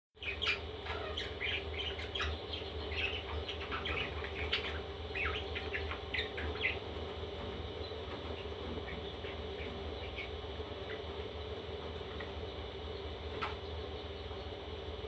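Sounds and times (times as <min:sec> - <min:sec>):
baby parrots chirping: 0:00.2 - 0:06.9, 0:07.8 - 0:11.1
steady low hum: 0:00.2 - 0:15.0.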